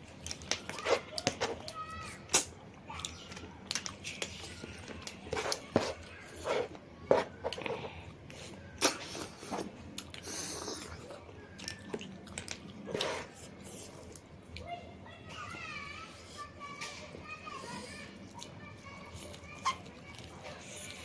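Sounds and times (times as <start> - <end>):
chewing with wet smacks: 7.5 - 14.8, 18.2 - 21.0.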